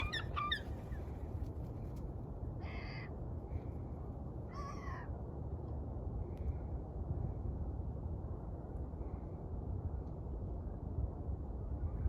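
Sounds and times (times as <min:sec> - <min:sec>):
gulls calling: 0:00.0 - 0:01.2
steady low rumble: 0:00.0 - 0:12.0.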